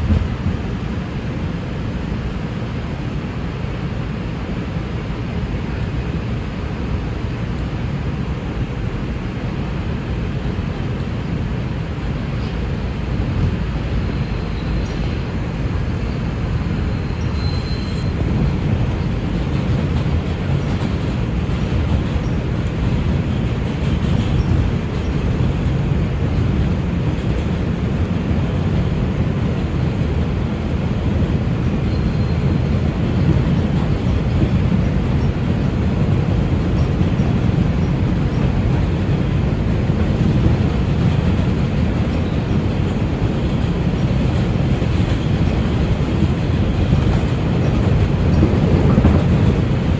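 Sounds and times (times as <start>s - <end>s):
subway train wheels rumbling: 0.0s - 49.9s
faint high squeal: 14.0s - 15.3s, 16.0s - 18.3s.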